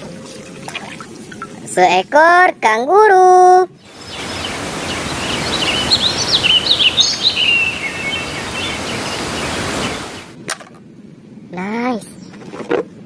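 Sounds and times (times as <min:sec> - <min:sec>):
running water hissing: 0:03.8 - 0:10.4.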